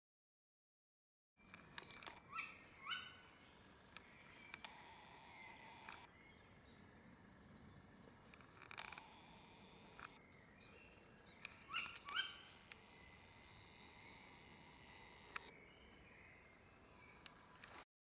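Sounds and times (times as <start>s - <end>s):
owl calling: 1.9s - 6.1s, 10.8s - 15.5s.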